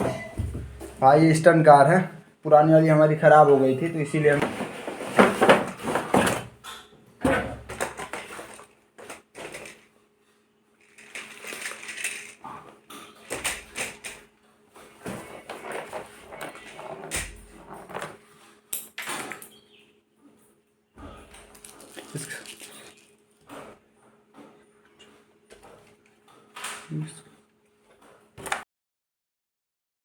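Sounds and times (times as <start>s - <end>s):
packaging rustling and clicking: 7.7s - 9.9s, 10.8s - 14.2s, 21.4s - 23.2s.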